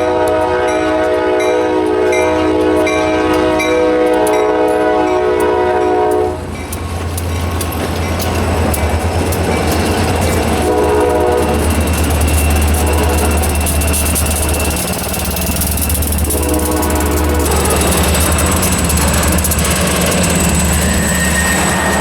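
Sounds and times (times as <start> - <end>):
locomotive air horn: 0.0 - 6.5, 10.6 - 11.8, 12.7 - 13.8, 15.7 - 19.4
locomotive engine drone: 0.0 - 22.0
wheels clattering on rail: 0.0 - 22.0.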